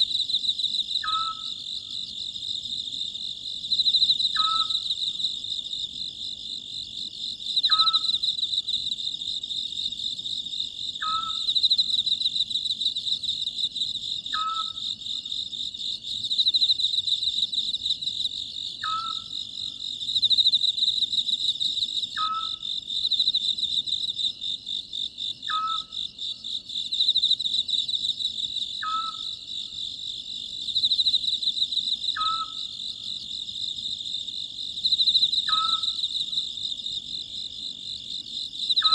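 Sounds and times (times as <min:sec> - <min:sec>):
crickets chirping: 0:00.0 - 0:38.9
owl hooting: 0:01.0 - 0:01.6, 0:04.4 - 0:04.8, 0:07.7 - 0:08.2, 0:11.0 - 0:11.5, 0:14.3 - 0:14.8, 0:18.8 - 0:19.3, 0:22.2 - 0:22.6, 0:25.5 - 0:25.9, 0:28.8 - 0:29.3, 0:32.2 - 0:32.7, 0:35.5 - 0:36.0.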